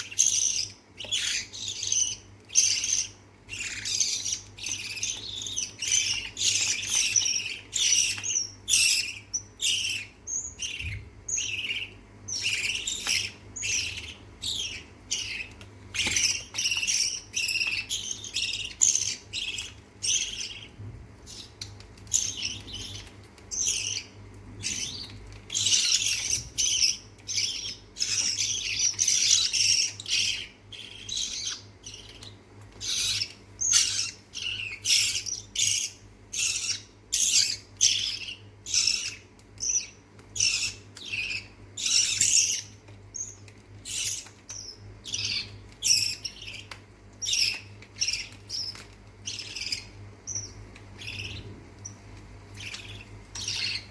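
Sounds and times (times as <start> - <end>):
chicks squawking begging calls: 43.9 - 53.9.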